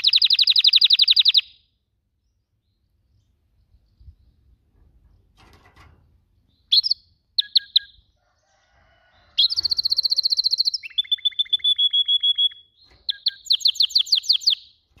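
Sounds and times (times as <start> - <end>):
canary chirping and trilling: 0.0 - 1.6, 3.7 - 15.0.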